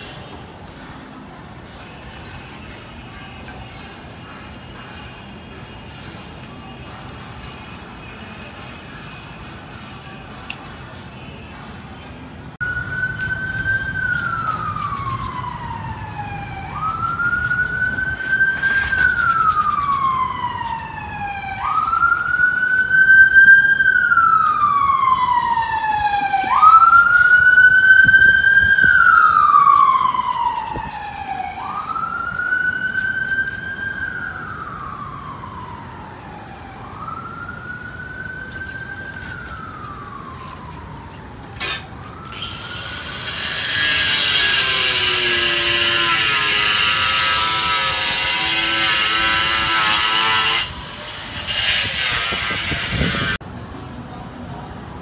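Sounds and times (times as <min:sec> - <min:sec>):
emergency vehicle wail siren: 0:12.6 - 0:51.5.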